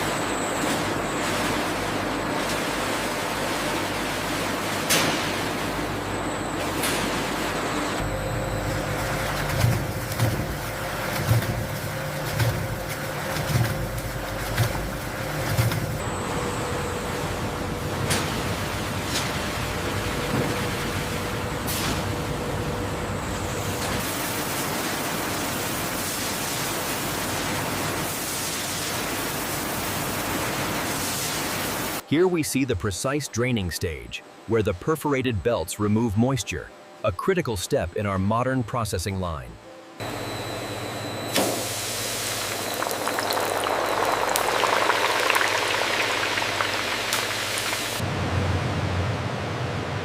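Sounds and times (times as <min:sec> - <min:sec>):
machine hum: 0:00.0 - 0:31.1, 0:33.8 - 0:50.0
liquid bubbling and crackling: 0:08.4 - 0:16.0, 0:41.7 - 0:48.1.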